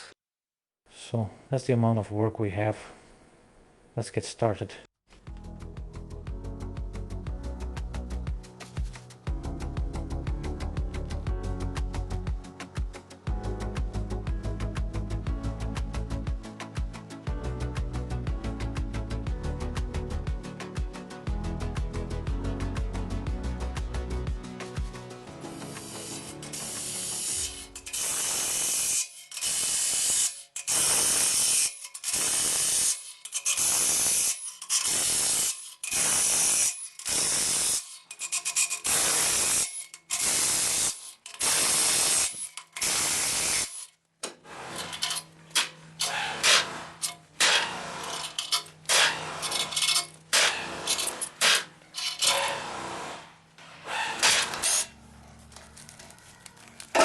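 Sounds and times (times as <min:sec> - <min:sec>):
tools clinking and scraping on metal: 0:37.8 - 0:38.9, 0:39.6 - 0:40.2, 0:41.0 - 0:41.5, 0:42.3 - 0:42.8, 0:44.7 - 0:52.6, 0:56.3 - 0:57.0.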